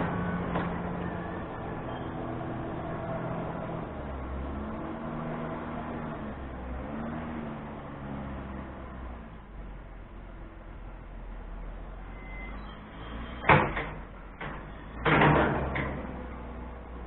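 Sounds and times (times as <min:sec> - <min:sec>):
heavy engine revving: 0:00.0 - 0:10.0.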